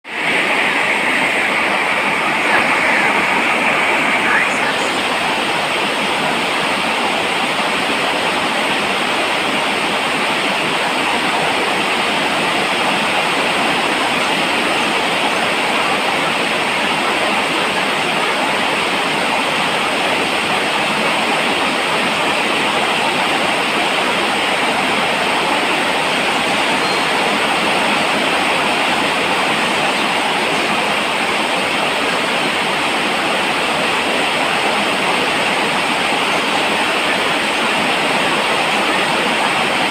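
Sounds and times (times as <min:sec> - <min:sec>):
steady falling rain: 0:00.0 - 0:39.9.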